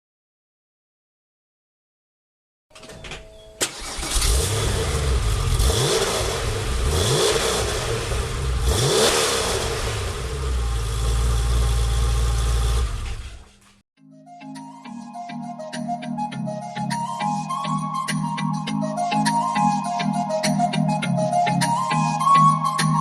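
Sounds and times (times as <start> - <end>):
car engine starting and revving: 3.6 - 13.6
car engine idling: 3.6 - 13.7.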